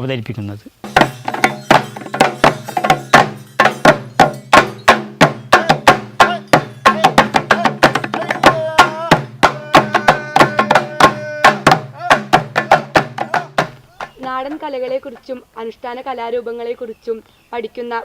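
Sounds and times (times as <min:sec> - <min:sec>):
sharp drum strokes: 0:00.8 - 0:13.9
wavering melodic tone: 0:01.1 - 0:08.3.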